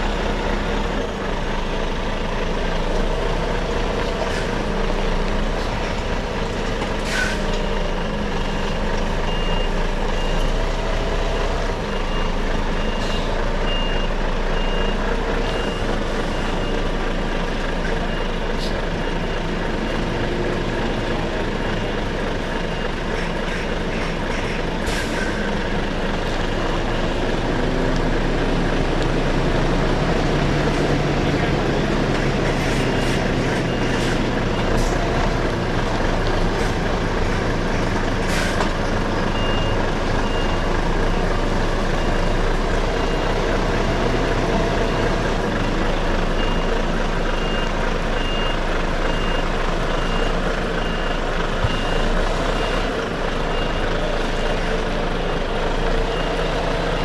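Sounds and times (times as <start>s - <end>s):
lorry diesel engine running: 0.0s - 57.0s
reversing alarm beeping: 7.4s - 17.4s, 39.3s - 45.2s, 45.8s - 57.0s.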